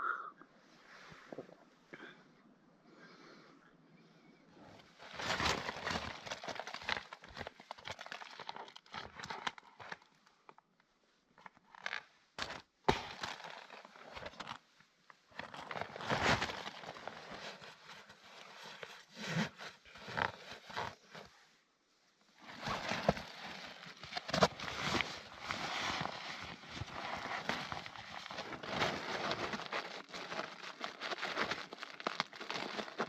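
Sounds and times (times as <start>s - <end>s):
rustling and crinkling of gear: 4.5s - 33.0s.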